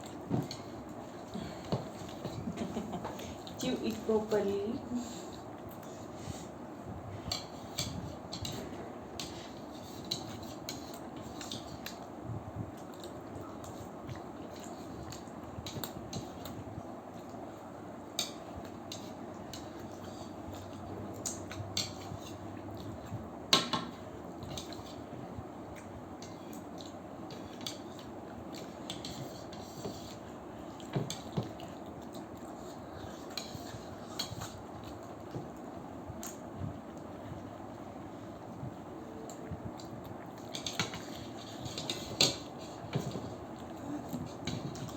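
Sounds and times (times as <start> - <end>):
low background noise: 0.0 - 44.9
chopsticks clicking on dishes: 18.1 - 20.0.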